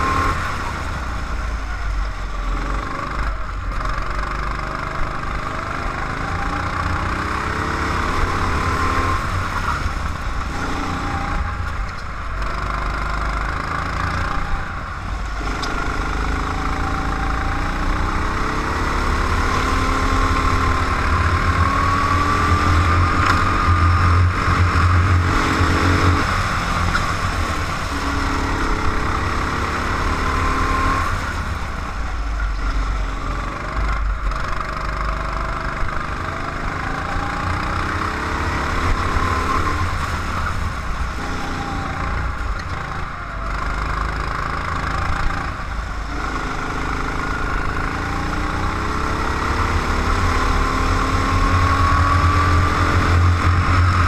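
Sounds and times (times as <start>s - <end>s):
road rumble: 0.0s - 54.0s
racing engine revving: 15.3s - 54.0s.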